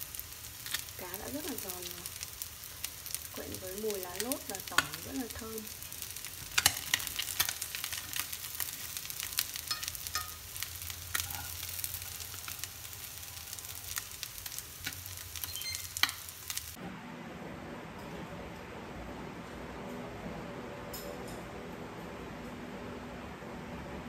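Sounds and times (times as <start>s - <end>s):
fish sizzling in oil: 0.0s - 16.8s
oil crackling and popping: 0.0s - 16.8s.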